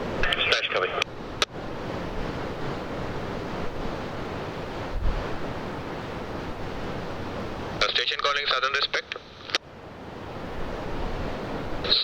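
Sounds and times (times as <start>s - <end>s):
wind rumbling on microphone: 0.0s - 8.0s, 9.3s - 12.0s
surf: 0.0s - 12.0s
radio squelch click: 0.2s - 1.5s, 9.0s - 9.6s.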